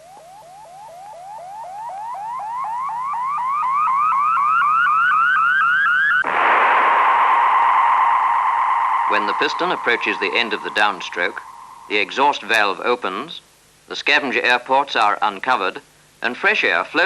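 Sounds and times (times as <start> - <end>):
rising electronic chirps: 0.0 - 12.5
rushing hiss with tone: 6.2 - 13.1.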